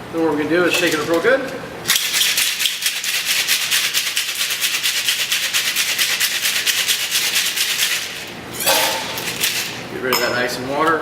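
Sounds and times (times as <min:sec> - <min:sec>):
ice rattling in cocktail shaker: 0:01.9 - 0:09.9.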